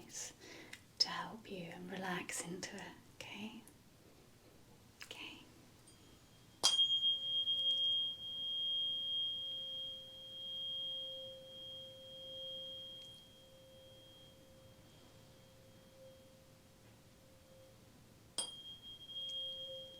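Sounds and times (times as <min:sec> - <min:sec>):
tuning fork ringing: 0:05.8 - 0:19.9
thin high overtone: 0:05.9 - 0:17.8, 0:18.4 - 0:19.9.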